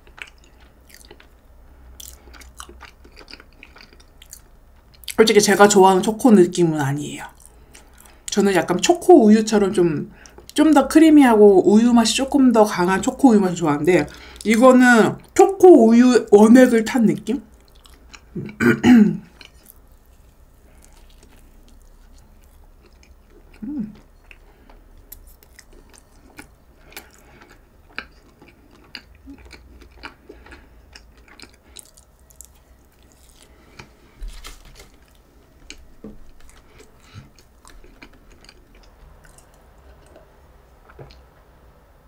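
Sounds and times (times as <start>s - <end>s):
close chewing wet mouth sounds: 0.0s - 1.3s, 1.9s - 5.2s, 17.4s - 18.6s, 19.3s - 34.4s.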